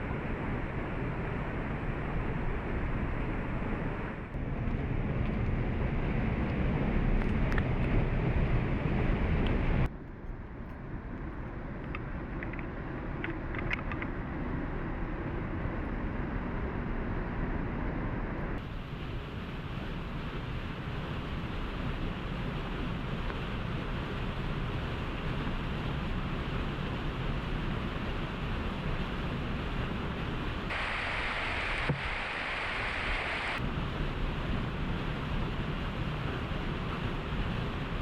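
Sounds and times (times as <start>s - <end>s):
waterfall rushing: 30.7s - 33.6s.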